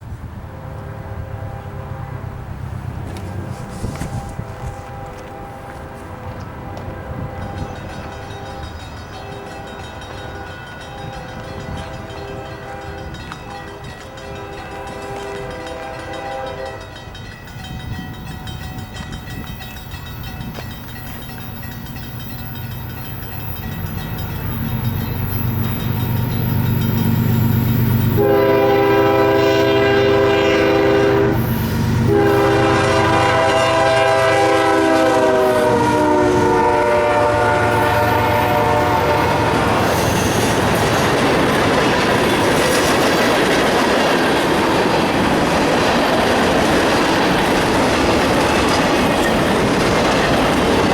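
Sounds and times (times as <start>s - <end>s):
locomotive air horn: 0.4s - 2.6s, 3.4s - 7.7s, 11.5s - 17.0s, 26.5s - 40.8s
train cars clickety-clack: 2.5s - 50.9s.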